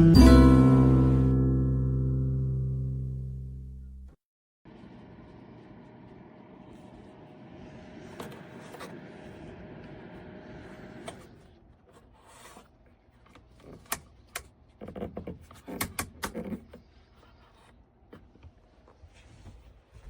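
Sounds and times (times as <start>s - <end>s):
heater fan hum: 4.7s - 14.6s.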